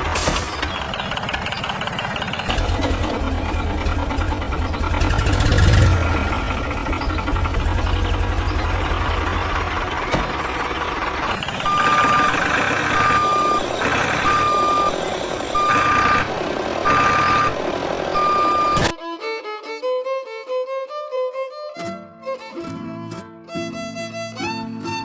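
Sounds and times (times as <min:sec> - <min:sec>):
vehicle engine running: 0:00.0 - 0:19.0
reversing alarm beeps: 0:11.3 - 0:19.0.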